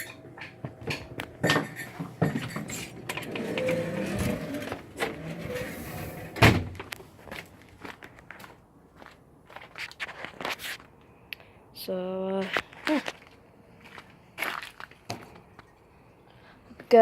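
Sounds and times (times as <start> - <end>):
knocks and clatter: 0.0 - 5.3
loud thump: 6.4 - 6.8.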